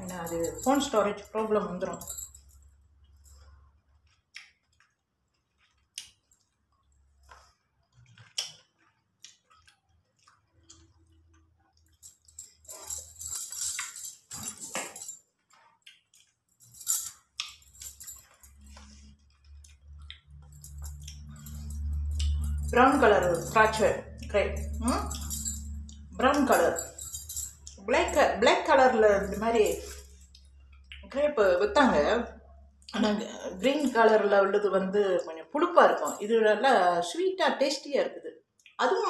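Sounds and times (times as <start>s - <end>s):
bangles jingling: 0.0s - 3.6s, 11.8s - 15.5s, 16.1s - 32.2s, 32.8s - 34.6s, 35.6s - 36.7s
soft chewing and mouth sounds: 2.5s - 12.6s, 15.2s - 22.5s, 30.1s - 31.1s, 38.4s - 38.8s.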